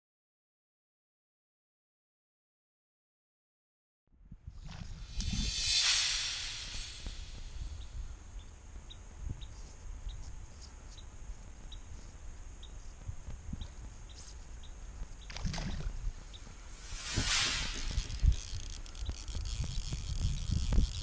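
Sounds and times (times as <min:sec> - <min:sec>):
wind rumble on microphone: 0:04.4 - 0:07.9, 0:15.5 - 0:18.8
brief rushing swish: 0:05.0 - 0:07.8, 0:16.3 - 0:18.7.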